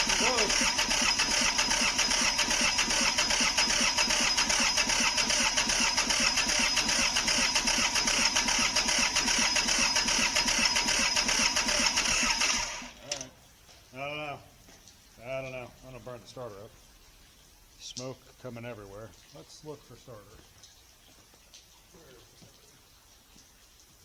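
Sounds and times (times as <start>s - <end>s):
diesel engine cranking: 0.0s - 13.3s.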